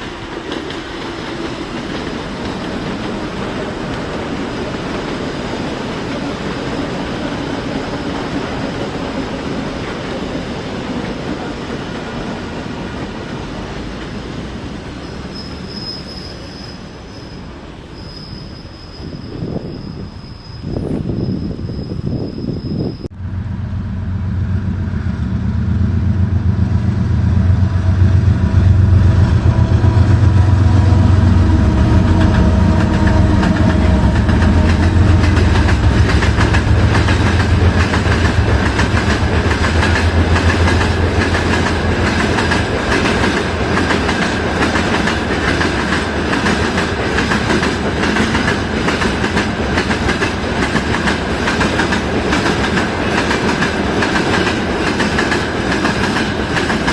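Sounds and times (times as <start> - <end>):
train wheels clicking over rail joints: 0.0 - 14.3, 28.4 - 56.9
train hum and whine: 0.0 - 56.9.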